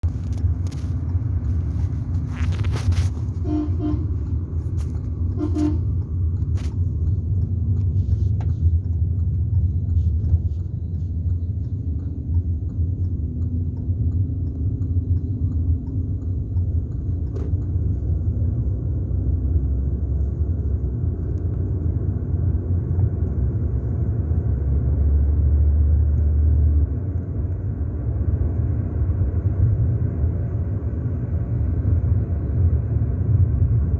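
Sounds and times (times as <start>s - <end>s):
vehicle engine rumble: 0.0s - 33.9s
horn toots: 3.3s - 4.3s, 5.3s - 6.0s.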